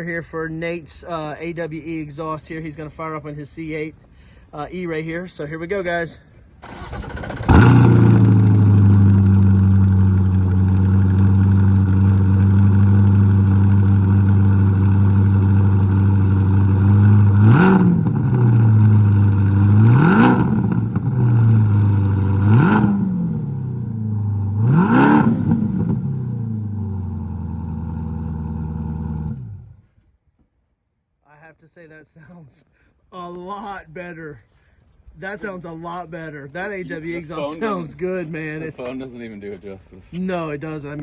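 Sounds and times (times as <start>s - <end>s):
car engine idling and revving: 7.1s - 29.8s.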